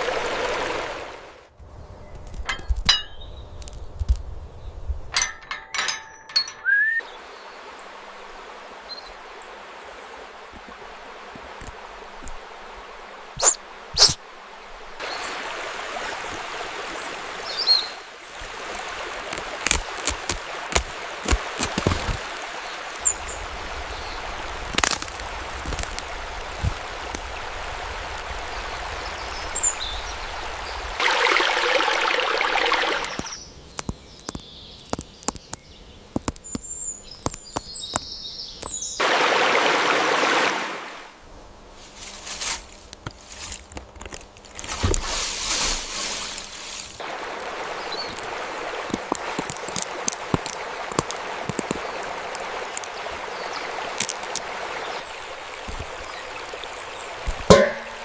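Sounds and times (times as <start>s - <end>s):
stream water trickling: 0.0s - 1.5s, 5.0s - 41.2s, 43.0s - 58.0s
water rushing: 0.0s - 1.5s, 5.2s - 33.4s, 38.6s - 41.2s, 47.0s - 58.0s
faint high bird chirps: 6.6s - 7.2s, 13.4s - 14.2s.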